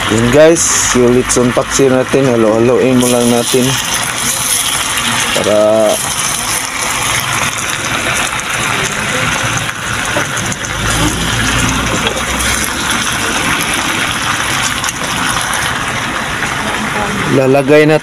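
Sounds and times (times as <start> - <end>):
meat sizzling in a wok: 0.0 - 17.7
spatula stirring in a wok: 3.0 - 15.9.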